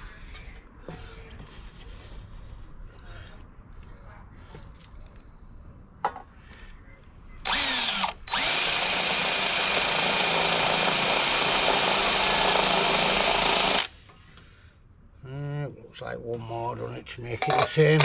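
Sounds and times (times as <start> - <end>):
electric drill boring sheet metal: 7.5 - 13.9.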